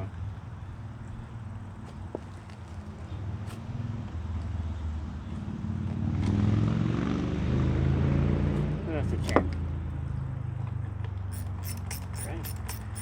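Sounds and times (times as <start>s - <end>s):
lawn mower engine running: 11.3s - 13.0s.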